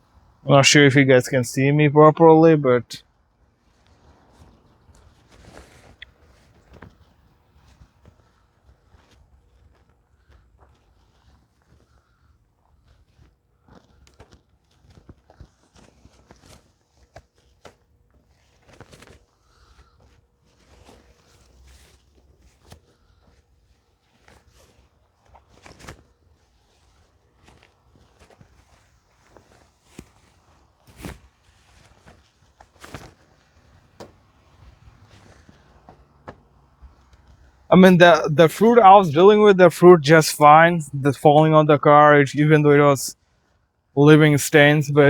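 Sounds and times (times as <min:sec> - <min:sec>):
fabric cover rustling: 0:24.0 - 0:36.4.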